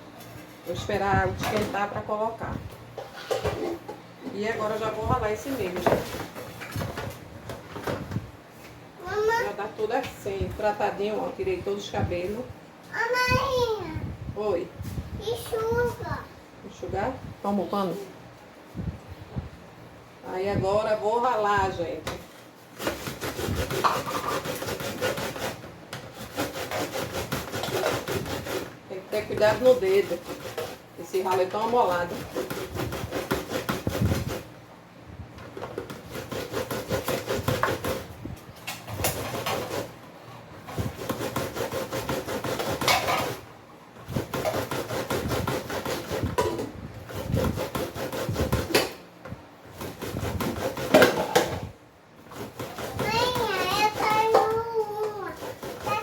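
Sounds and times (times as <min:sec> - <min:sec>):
corn rasped on hand grater: 0:22.8 - 0:34.5, 0:35.9 - 0:38.1, 0:38.9 - 0:40.0, 0:40.7 - 0:43.4, 0:44.1 - 0:46.4, 0:47.0 - 0:48.9, 0:49.8 - 0:51.5, 0:52.2 - 0:56.0.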